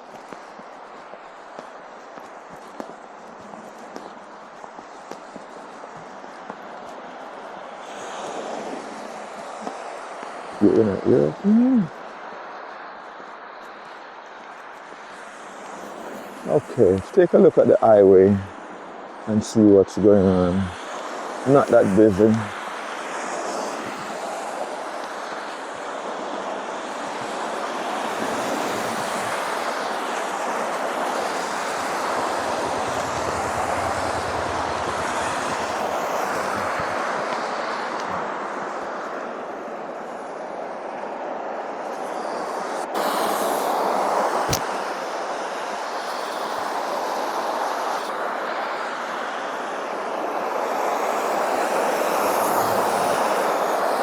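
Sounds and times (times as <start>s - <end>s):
traffic rushing past: 19.1s - 39.6s.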